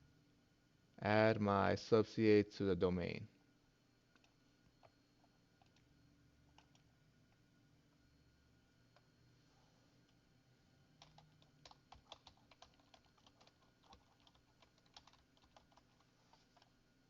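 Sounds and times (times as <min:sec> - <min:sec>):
faint computer keyboard typing: 0:04.1 - 0:05.9, 0:06.5 - 0:07.4, 0:11.0 - 0:16.8.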